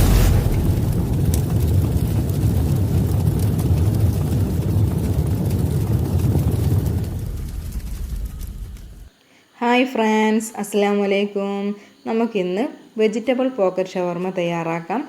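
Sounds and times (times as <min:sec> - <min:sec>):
deep low rumble: 0:00.0 - 0:09.1.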